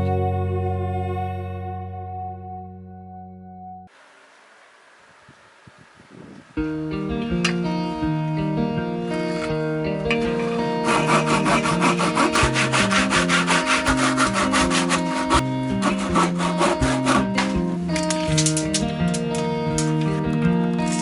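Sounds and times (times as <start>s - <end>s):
guitar music: 6.6s - 21.0s
hand saw cutting wood: 10.8s - 18.0s.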